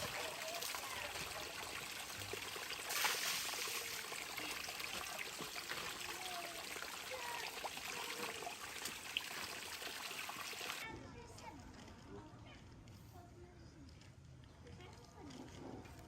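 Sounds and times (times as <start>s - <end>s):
trickling water: 0.0s - 10.8s
water gush: 0.0s - 10.8s.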